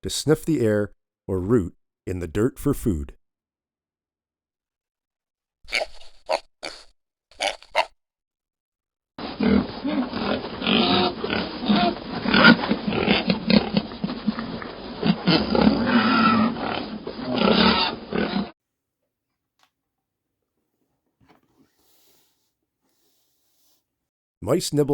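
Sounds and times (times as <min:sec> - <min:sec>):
recorded pig sounds: 0:05.7 - 0:07.9, 0:09.2 - 0:18.5.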